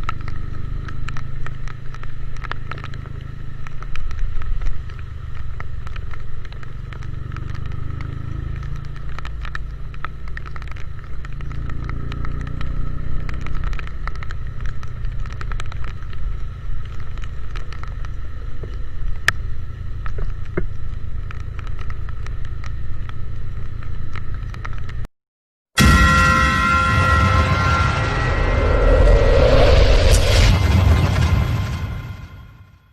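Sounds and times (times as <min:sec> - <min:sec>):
rain ticking on microphone: 0:00.0 - 0:25.1
wind and engine rumble: 0:00.0 - 0:25.1, 0:27.2 - 0:32.6.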